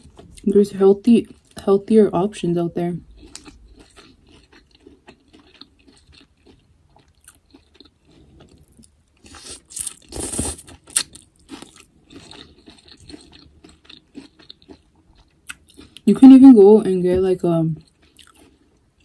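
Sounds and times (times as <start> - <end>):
chewing food: 0.0 - 1.7, 3.0 - 16.4, 17.7 - 19.0
crunching: 3.0 - 16.0.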